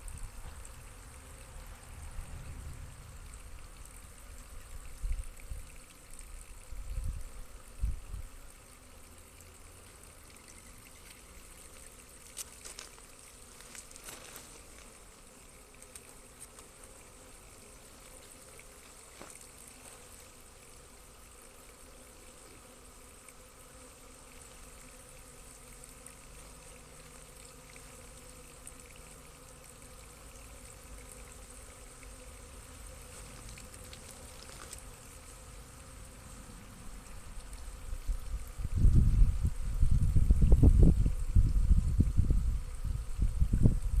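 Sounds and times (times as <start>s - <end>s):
honeybees buzzing: 0.0s - 44.0s.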